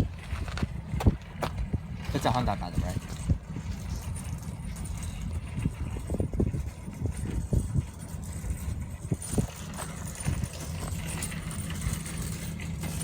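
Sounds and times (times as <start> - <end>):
footsteps on pavement: 0.0 - 2.5
wind rumble on microphone: 0.0 - 13.0.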